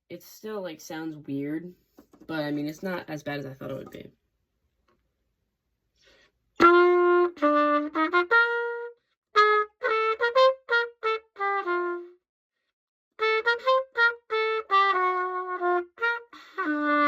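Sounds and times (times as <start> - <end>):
cornet playing: 6.6 - 12.2, 13.2 - 17.0.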